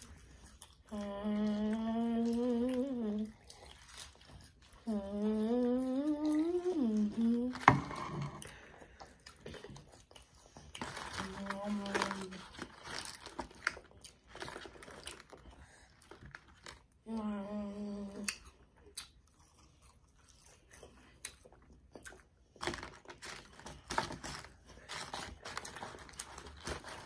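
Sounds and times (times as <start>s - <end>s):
children chewing food: 0.0s - 27.0s
child humming: 1.0s - 3.3s, 4.9s - 7.7s, 17.1s - 18.3s
small crunches: 9.3s - 17.0s, 22.0s - 27.0s.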